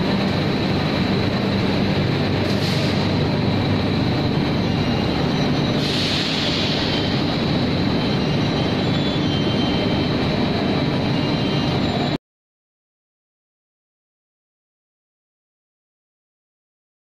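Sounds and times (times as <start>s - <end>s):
mill machinery rumble and hiss: 0.0s - 12.2s.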